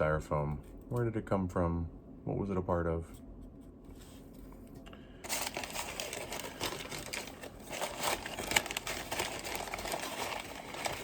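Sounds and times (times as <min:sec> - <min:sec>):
packing material crinkling: 0:05.2 - 0:11.0.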